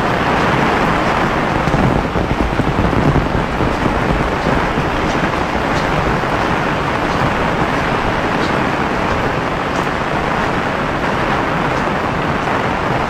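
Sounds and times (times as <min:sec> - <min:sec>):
heavy rain hissing: 0:00.0 - 0:13.0
low rumble: 0:00.8 - 0:09.6.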